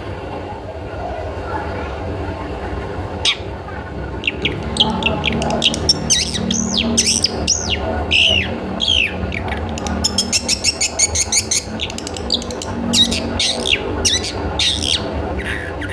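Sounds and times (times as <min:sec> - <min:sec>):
dry clicking bird notes: 0:04.2 - 0:15.1
shrike whistled call: 0:04.2 - 0:15.7.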